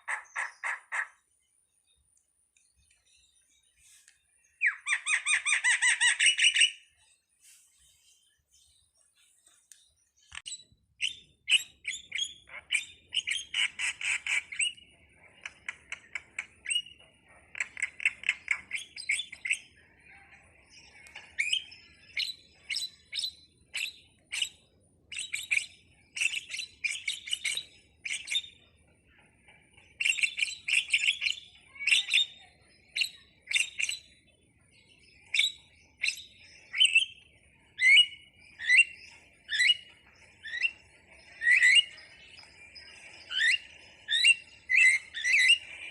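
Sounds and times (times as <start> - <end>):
starling chirping and squawking: 0.0 - 1.2, 4.6 - 6.9, 11.0 - 14.8, 37.8 - 42.5, 43.2 - 45.9.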